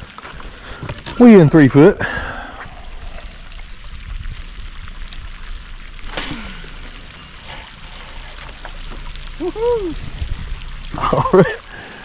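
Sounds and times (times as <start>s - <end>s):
wind noise: 0.0s - 6.4s, 9.4s - 11.3s
water lapping: 0.0s - 12.0s
faint high whine: 6.0s - 11.9s.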